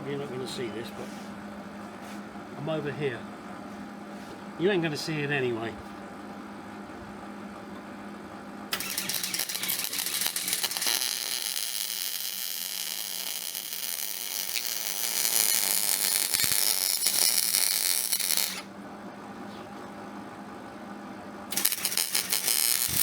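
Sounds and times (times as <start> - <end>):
electric welding arc crackling: 8.8 - 18.7, 21.5 - 23.0.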